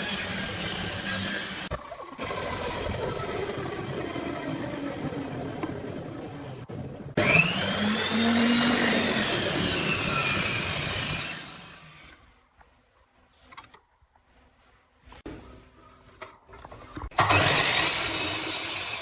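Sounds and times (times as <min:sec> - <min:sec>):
power tool cutting wood: 0:00.0 - 0:06.0, 0:07.2 - 0:12.2, 0:17.2 - 0:19.0.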